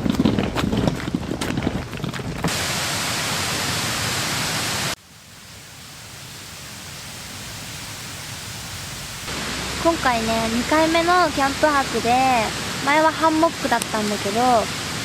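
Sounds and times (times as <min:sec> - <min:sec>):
steady rushing hiss: 0:02.4 - 0:15.0.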